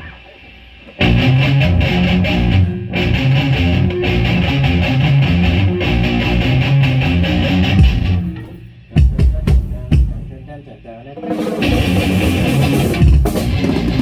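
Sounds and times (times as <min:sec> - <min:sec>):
guitar strumming chords: 0:00.0 - 0:14.0
low bass line: 0:01.0 - 0:10.6.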